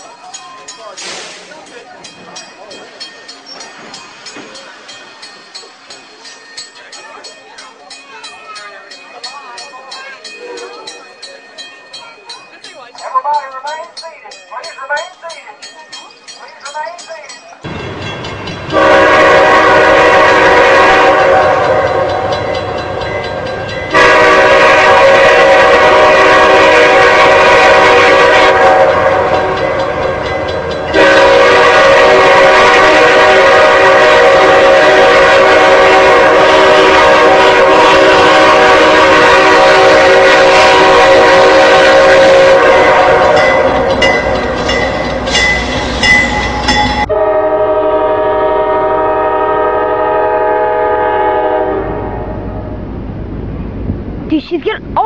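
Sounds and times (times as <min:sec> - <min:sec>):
moving train rumble: 0:00.0 - 0:55.0
train horn blasts: 0:18.7 - 0:22.6, 0:23.9 - 0:44.4, 0:46.7 - 0:52.5.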